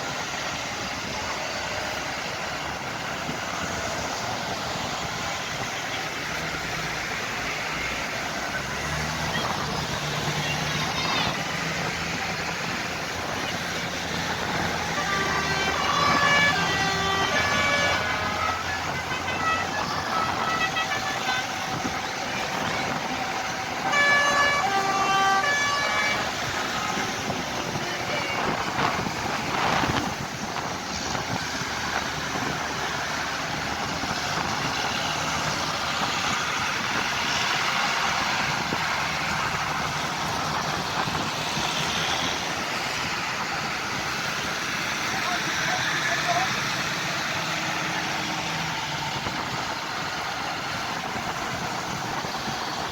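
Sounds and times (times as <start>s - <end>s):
tractor engines running: 0.0s - 52.9s
tractor horns tooting: 8.6s - 30.0s.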